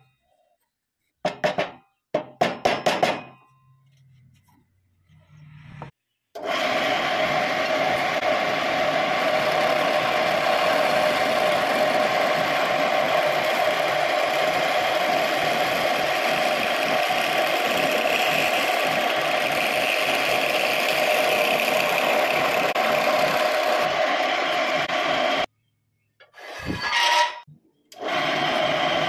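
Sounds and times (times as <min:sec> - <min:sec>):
wood lathe running: 0:06.4 - 0:25.5, 0:28.0 - 0:29.0.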